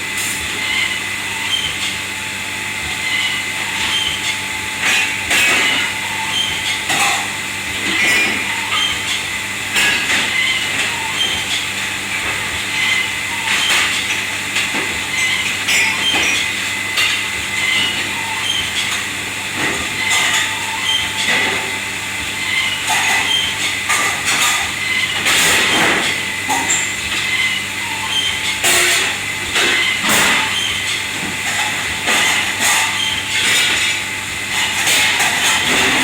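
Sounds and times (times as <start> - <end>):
machine hum and hiss: 0.0 - 36.0
dishes and metal clattering: 22.8 - 27.3, 28.2 - 36.0.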